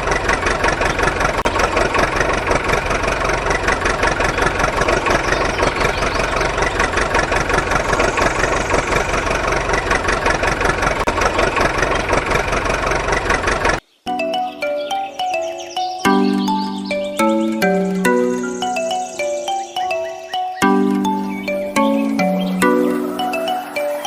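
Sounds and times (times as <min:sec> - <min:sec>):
engine idling with rapid pulsing: 0:00.0 - 0:13.8
short tune: 0:14.1 - 0:24.0.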